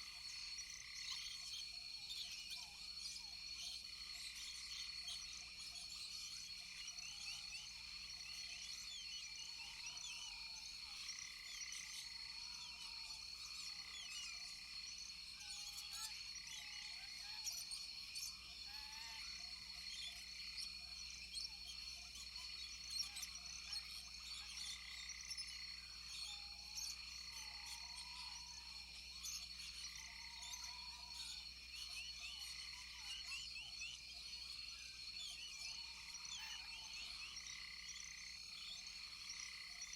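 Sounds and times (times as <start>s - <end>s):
high insect drone with chirps: 0.0s - 39.9s.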